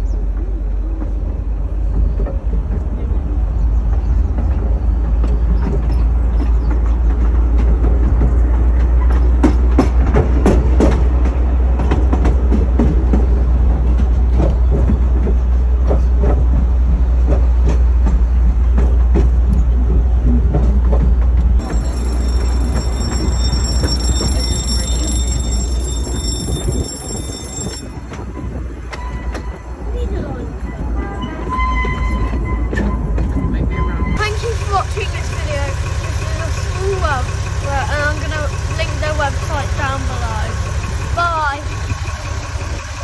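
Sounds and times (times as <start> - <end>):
carriage rumble: 0.0 - 43.0
wheels clattering over rail joints: 0.0 - 43.0.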